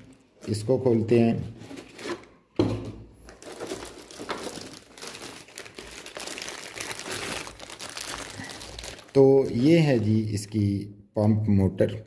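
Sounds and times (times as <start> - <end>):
packaging crinkling and rustling: 3.2 - 10.6.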